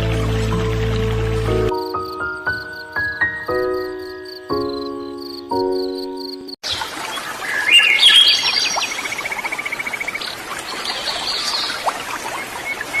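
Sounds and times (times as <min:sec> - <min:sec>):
soft music: 0:00.0 - 0:06.6
songbirds chirping and singing: 0:04.0 - 0:13.0.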